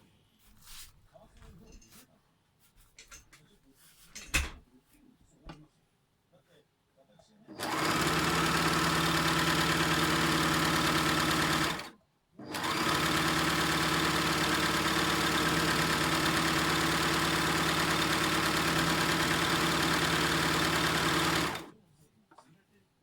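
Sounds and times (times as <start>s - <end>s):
serger sewing machine running: 7.5s - 21.7s.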